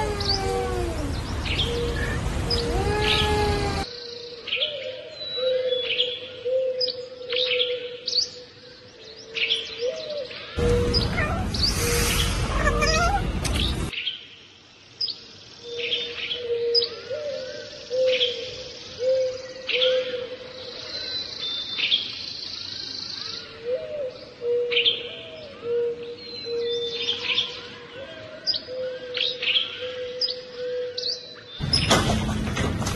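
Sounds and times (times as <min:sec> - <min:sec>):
small birds chirping: 0:00.0 - 0:06.2, 0:06.8 - 0:31.9
loud hissing noise: 0:10.6 - 0:13.9.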